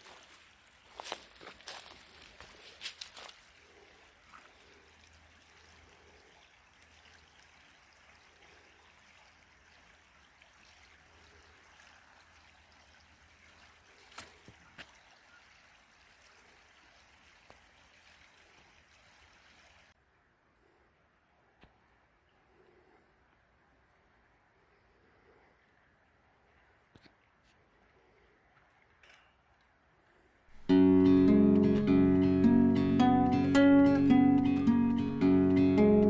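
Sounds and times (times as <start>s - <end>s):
creek water flowing: 0.0s - 20.0s, 30.5s - 36.0s.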